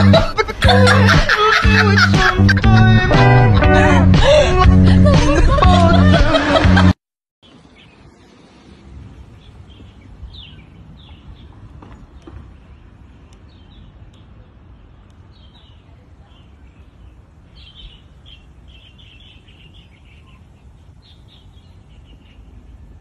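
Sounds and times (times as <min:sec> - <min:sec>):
low outdoor rumble: 0:00.0 - 0:23.0
small birds chirping: 0:07.4 - 0:23.0.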